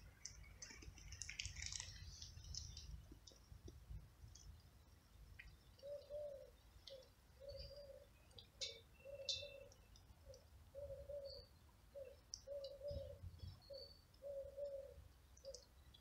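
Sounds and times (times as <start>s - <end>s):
bird cooing: 5.8s - 15.6s.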